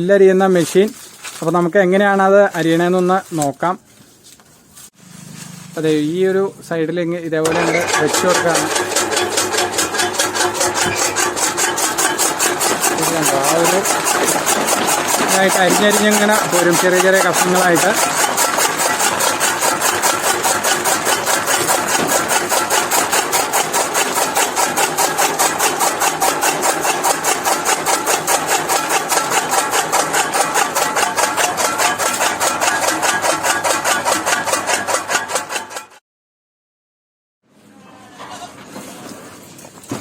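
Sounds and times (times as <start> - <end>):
chaff cutter chopping grass: 7.4 - 36.0.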